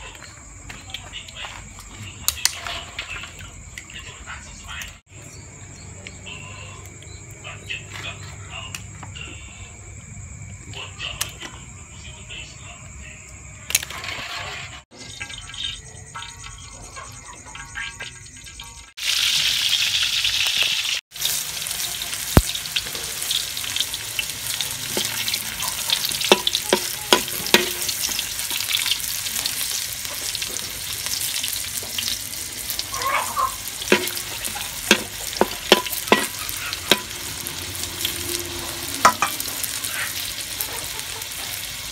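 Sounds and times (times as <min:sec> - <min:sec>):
food sizzling in hot oil: 0:14.0 - 0:41.9.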